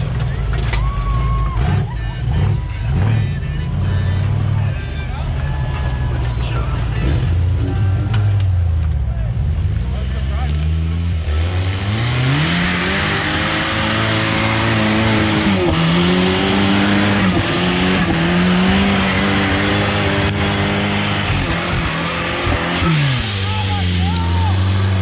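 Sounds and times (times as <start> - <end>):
engine revving under load: 6.8 - 25.0.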